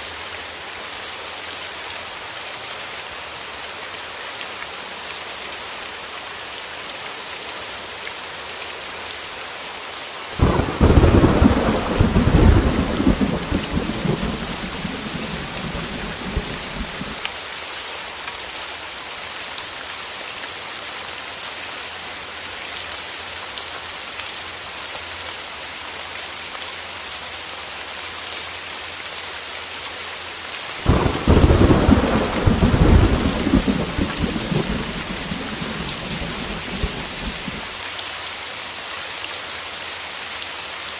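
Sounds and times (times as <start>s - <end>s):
heavy rain falling: 0.0s - 40.9s
thunder rumbling: 10.4s - 17.2s, 30.8s - 37.7s.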